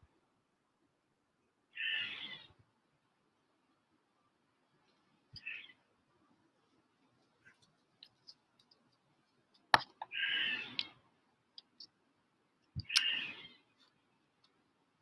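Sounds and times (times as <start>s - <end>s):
harsh bird call: 1.8s - 2.5s, 10.1s - 10.8s, 12.8s - 13.6s.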